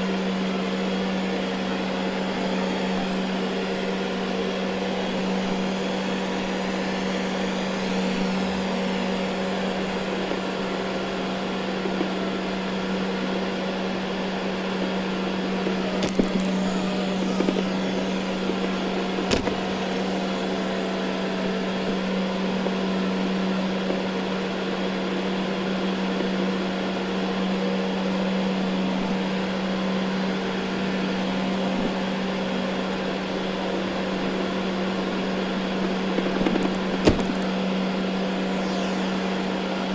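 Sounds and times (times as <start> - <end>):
robot vacuum humming: 0.0 - 24.2, 35.8 - 39.9.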